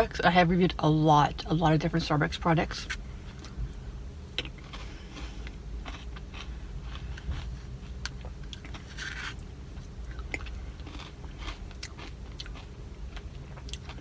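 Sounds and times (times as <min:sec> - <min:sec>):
close-up chewing: 0:03.4 - 0:14.0
small crunches: 0:04.4 - 0:14.0.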